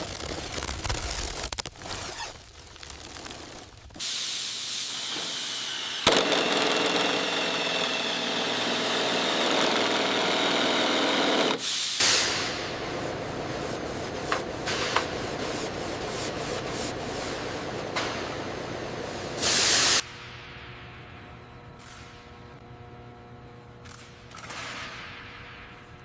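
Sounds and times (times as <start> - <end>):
crackling: 0.0 - 4.0
mechanical hiss with faint hum: 11.6 - 26.0.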